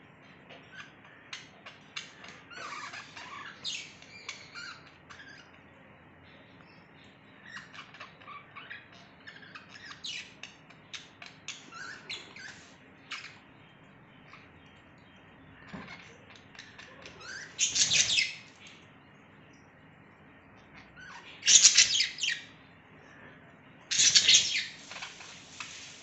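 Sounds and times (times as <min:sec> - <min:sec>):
budgerigar chirping and squawking: 0:00.7 - 0:05.6, 0:11.3 - 0:13.4, 0:15.6 - 0:18.5, 0:20.8 - 0:22.5, 0:23.9 - 0:25.4.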